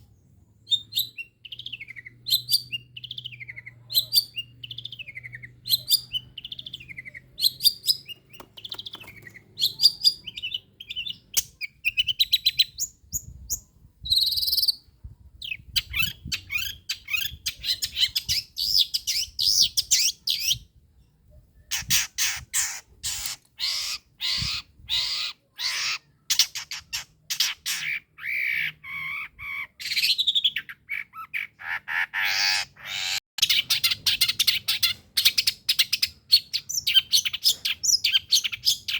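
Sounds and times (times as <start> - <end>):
bird singing chirps and whistles: 0.6 - 20.7, 27.4 - 31.6.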